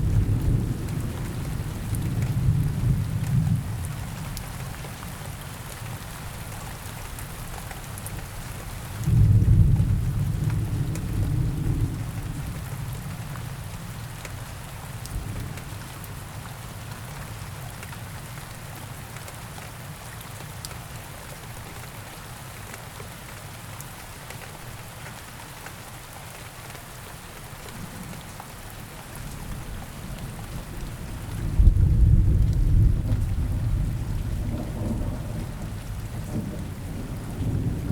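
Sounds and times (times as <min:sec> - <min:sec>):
low rumble of thunder: 0:00.0 - 0:05.0, 0:09.0 - 0:14.3, 0:15.0 - 0:16.6, 0:29.2 - 0:37.9
steady rain falling: 0:00.0 - 0:37.9.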